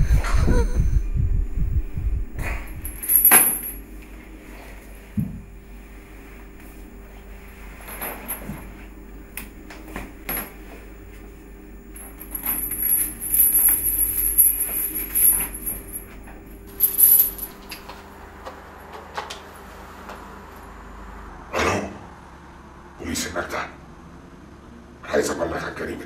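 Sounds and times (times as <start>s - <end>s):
low steady drone: 0.0s - 18.3s
bright metallic jingling: 2.4s - 3.9s, 11.9s - 17.9s.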